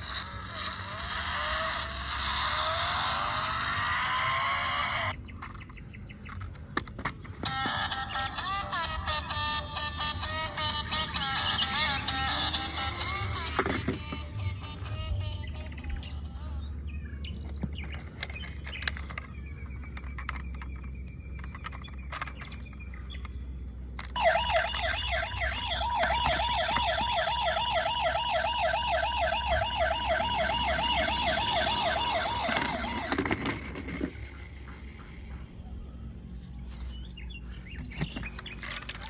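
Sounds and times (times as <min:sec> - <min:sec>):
toy police siren warbling: 0:00.0 - 0:05.2, 0:07.4 - 0:16.6, 0:24.0 - 0:34.3
scattered clicks: 0:17.3 - 0:23.4.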